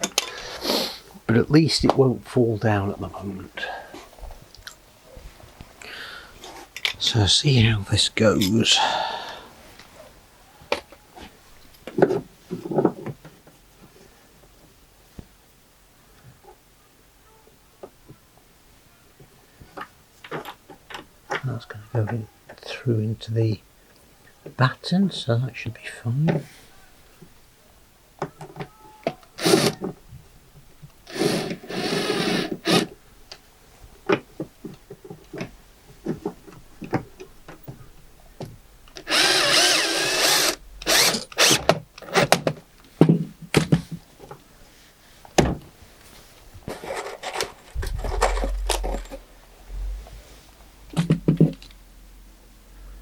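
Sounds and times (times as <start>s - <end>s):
power drill driving screws into wood: 29.4s - 29.9s, 31.1s - 33.0s, 39.0s - 42.4s
handling knocks and clicks: 40.8s - 44.5s, 46.6s - 49.3s.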